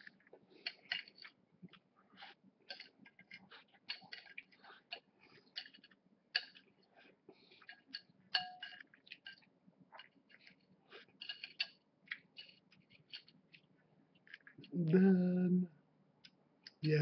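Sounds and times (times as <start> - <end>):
cutlery clinking against a dish: 7.6 - 9.5, 11.2 - 11.8.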